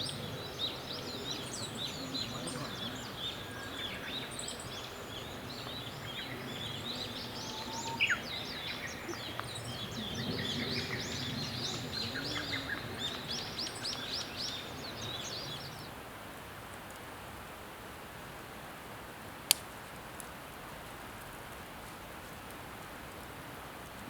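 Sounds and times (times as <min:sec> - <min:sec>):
small birds chirping and twittering: 0:00.0 - 0:16.0
steady low background noise: 0:00.0 - 0:24.0.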